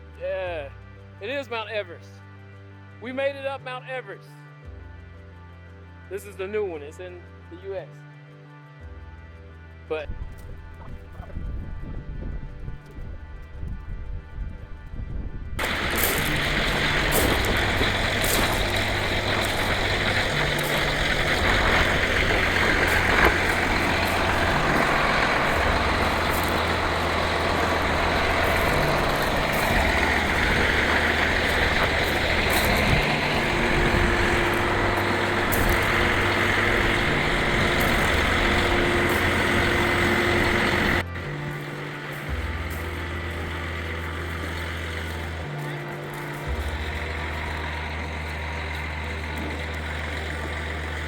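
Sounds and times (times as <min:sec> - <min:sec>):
wind noise rushing: 0:10.9 - 0:27.2
motorcycle engine running: 0:15.6 - 0:51.0.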